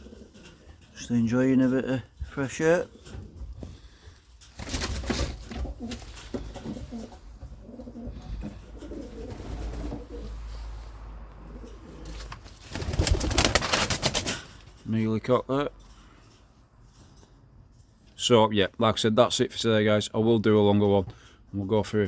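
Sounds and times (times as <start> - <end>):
pigeons cooing: 0.0 - 0.9, 5.1 - 13.5.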